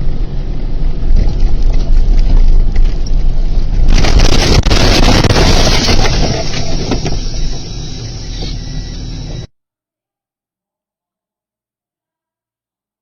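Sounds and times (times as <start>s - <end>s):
loud rushing noise: 0.0s - 9.5s
road and wind rumble: 0.0s - 9.5s.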